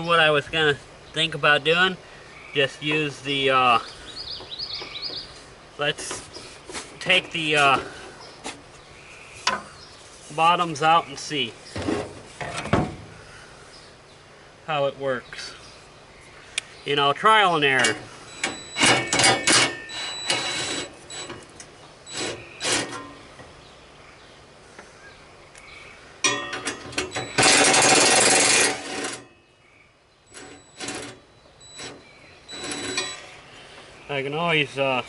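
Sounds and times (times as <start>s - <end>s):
knocks and clicks of parts: 26.2s - 28.2s
dense rattling scrape: 27.2s - 29.3s.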